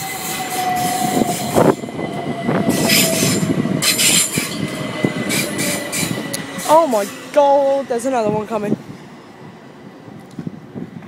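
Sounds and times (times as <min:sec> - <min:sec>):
train wheels squealing: 0:00.0 - 0:08.3
train rumble: 0:00.0 - 0:11.0.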